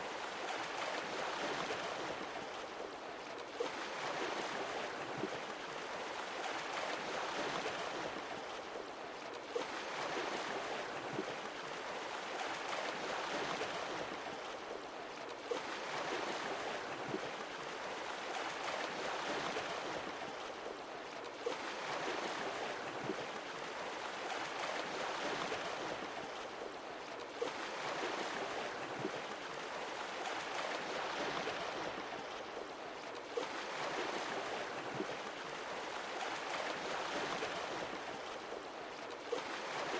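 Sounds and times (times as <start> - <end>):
sea waves washing on shore: 15.5 - 39.9.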